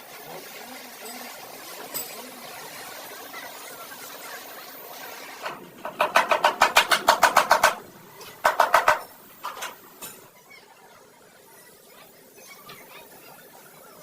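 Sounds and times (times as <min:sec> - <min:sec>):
rapid metallic clicks: 0:05.4 - 0:09.8.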